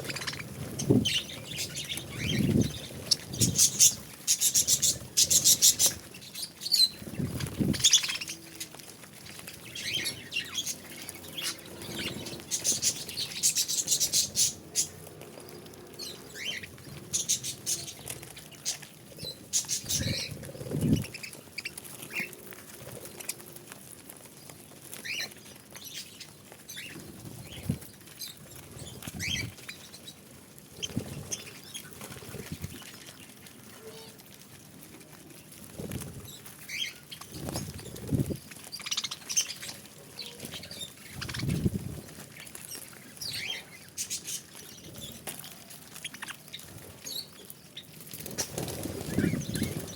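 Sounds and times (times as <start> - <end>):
budgerigars chirping and chattering: 0.0 - 15.0, 16.0 - 22.3, 25.0 - 30.2, 36.3 - 45.3, 45.9 - 49.9
fluttering wings: 0.0 - 49.9.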